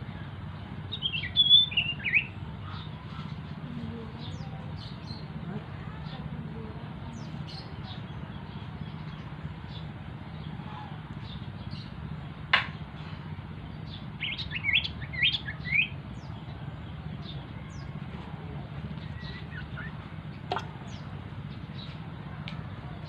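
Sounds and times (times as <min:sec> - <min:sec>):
steady low hum: 0:00.0 - 0:23.0
small bird chirping: 0:18.9 - 0:22.0.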